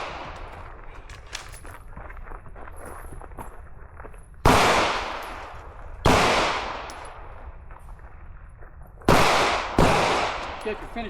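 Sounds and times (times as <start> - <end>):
gunshots with echo: 0.0 - 0.5, 4.5 - 7.3, 9.1 - 11.0.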